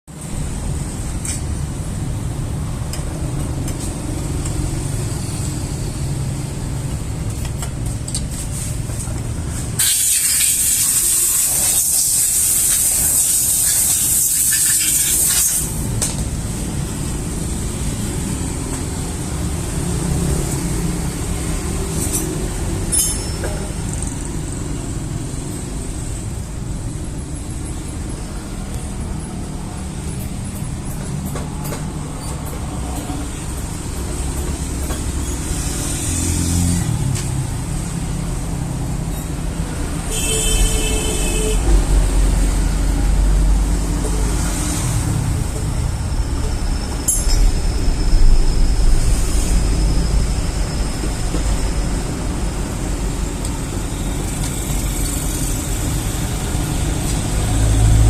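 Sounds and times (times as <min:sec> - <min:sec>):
loud hiss: 0:09.7 - 0:16.0.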